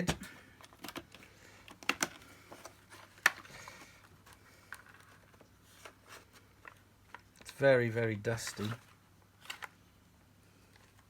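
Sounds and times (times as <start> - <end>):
plastic parts clicking and knocking: 0.0 - 5.4.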